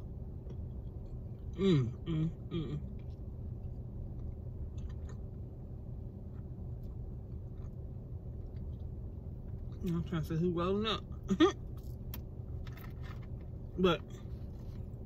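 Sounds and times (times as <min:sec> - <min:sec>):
steady low rumble: 0:00.0 - 0:15.0
woman murmuring: 0:01.6 - 0:02.8
quiet chewing: 0:02.8 - 0:05.4, 0:06.2 - 0:10.0.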